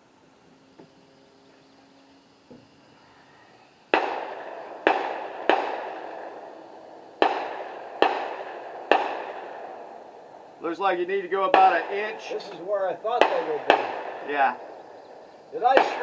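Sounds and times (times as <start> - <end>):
gunshots with ringing echo: 3.8 - 16.0.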